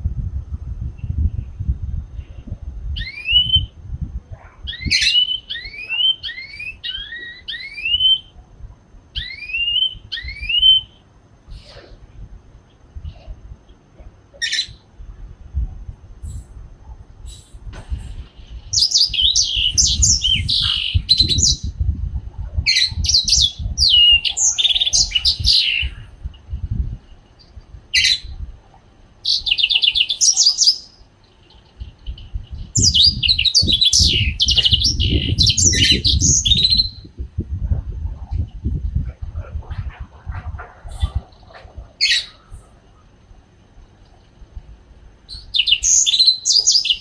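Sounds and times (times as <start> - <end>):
canary warbling: 4.4 - 8.3, 18.7 - 21.6, 22.7 - 26.1, 39.0 - 42.7
low rumble: 14.8 - 28.9, 31.8 - 45.3.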